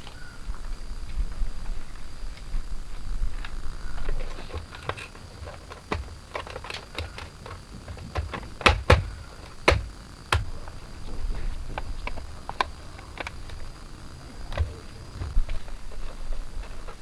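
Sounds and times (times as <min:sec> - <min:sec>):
sharp knocks: 0:04.5 - 0:10.6.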